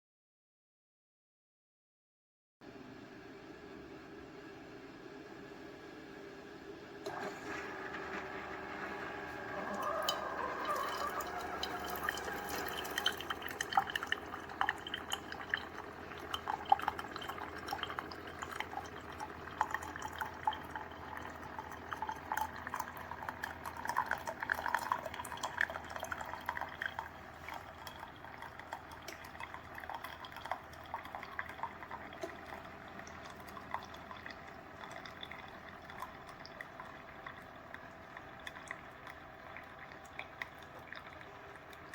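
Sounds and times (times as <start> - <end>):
coffee maker humming: 2.7 - 41.9
water trickling into cup: 9.2 - 41.9.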